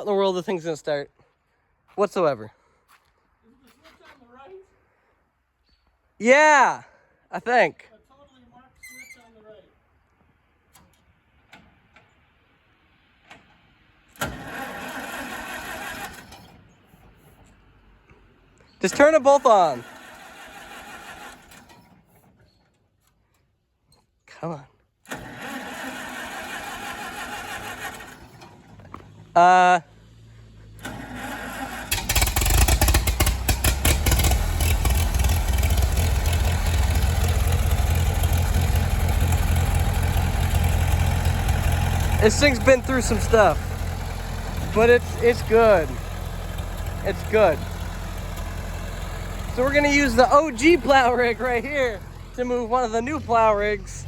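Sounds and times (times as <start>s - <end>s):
tractor starter cranking engine: 13.2s - 17.7s, 18.8s - 22.5s, 25.0s - 29.3s, 30.6s - 54.0s.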